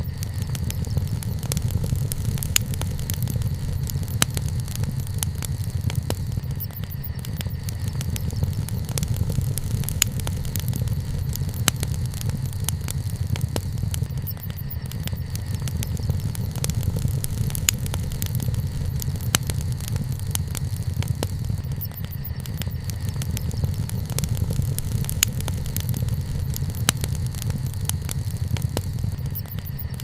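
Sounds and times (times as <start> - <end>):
bonfire flames rumbling: 0.0 - 30.0
burning wood crackling and popping: 0.0 - 30.0.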